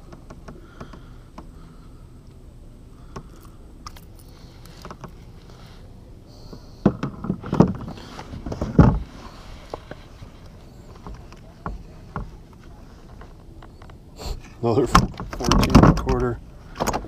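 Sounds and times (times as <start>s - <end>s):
light clicks and taps on kayak: 0.1s - 1.5s.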